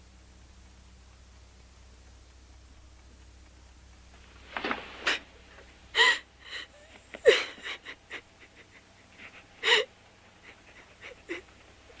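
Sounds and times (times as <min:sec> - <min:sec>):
gasping breaths: 0:05.0 - 0:12.0
person crying and sobbing: 0:05.9 - 0:12.0.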